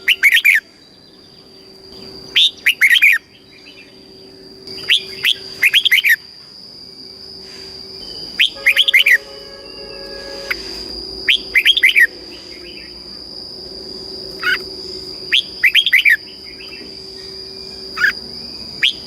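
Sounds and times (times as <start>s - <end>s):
bird singing whistled phrases: 0.0s - 1.4s, 4.7s - 6.2s, 8.0s - 12.9s, 15.3s - 19.0s.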